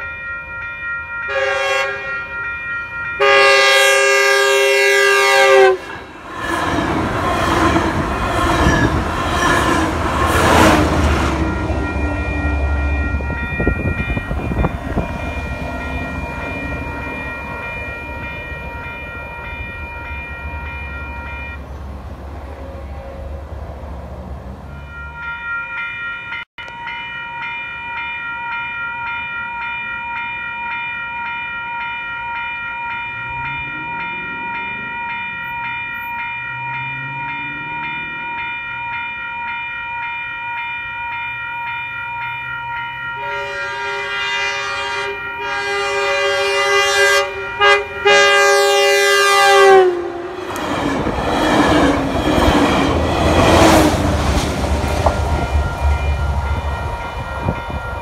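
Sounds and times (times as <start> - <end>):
train rumbling past: 0.0 - 27.5, 32.8 - 39.7, 40.6 - 58.0
crossing warning bells ringing: 0.0 - 58.0
train horn blasts: 1.3 - 2.4, 3.2 - 6.3, 43.2 - 50.4.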